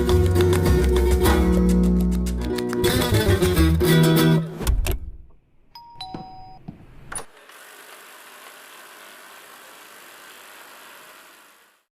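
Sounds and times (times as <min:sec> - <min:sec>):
robot vacuum fan whirring: 0:07.3 - 0:11.9.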